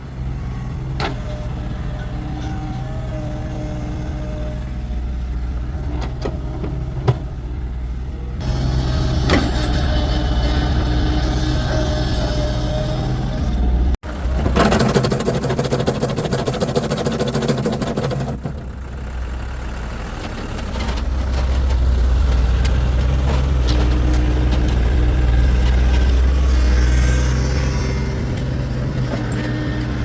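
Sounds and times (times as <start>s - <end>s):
heavy vehicle engine running: 0.0s - 30.0s
fast rattling clatter: 14.3s - 18.7s.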